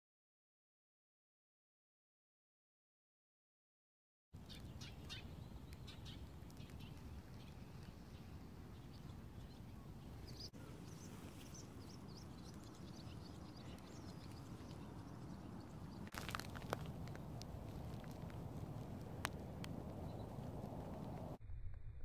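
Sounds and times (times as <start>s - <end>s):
small birds chirping: 4.4s - 21.4s
low outdoor rumble: 4.4s - 22.0s.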